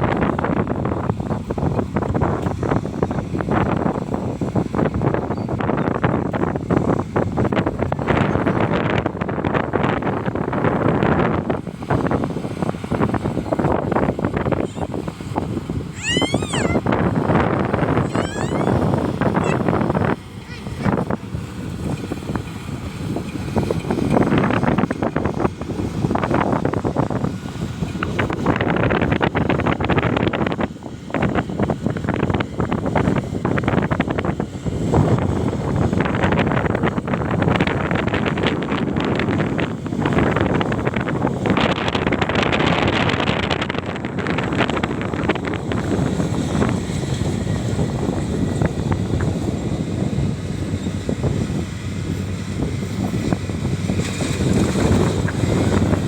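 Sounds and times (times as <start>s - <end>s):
wind buffeting microphone: 0.0s - 56.0s
combine harvester rumbling: 0.1s - 29.7s, 43.9s - 56.0s
combine harvester running: 46.0s - 56.0s.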